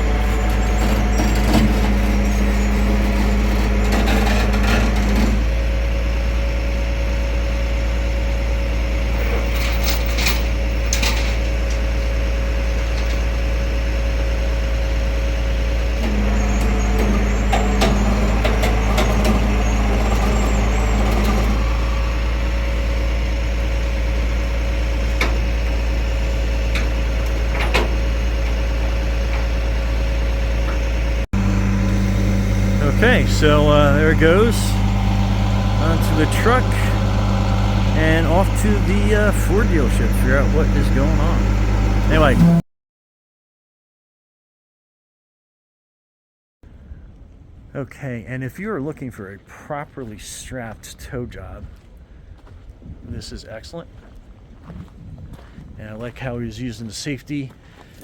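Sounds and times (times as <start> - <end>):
hydraulics humming: 0.0 - 42.6
tow truck engine running: 0.0 - 42.6
knocks and clanks of chains: 9.3 - 11.5.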